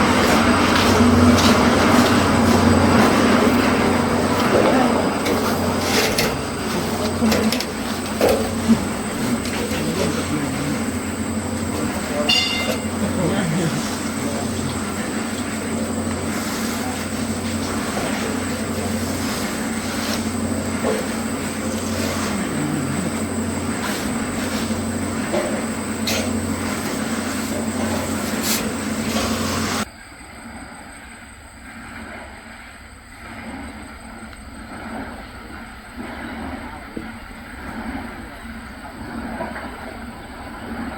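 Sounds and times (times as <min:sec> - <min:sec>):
machine running hum and whine: 0:00.0 - 0:29.9.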